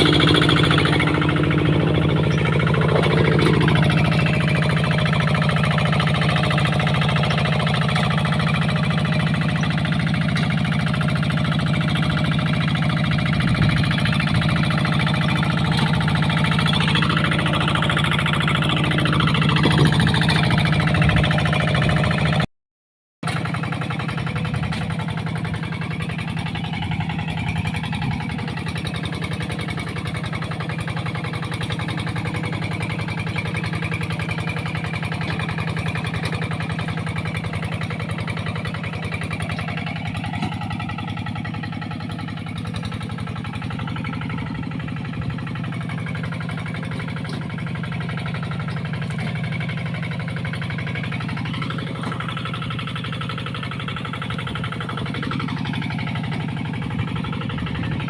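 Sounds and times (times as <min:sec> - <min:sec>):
engine running steadily: 0:00.0 - 0:22.5, 0:23.2 - 0:58.0.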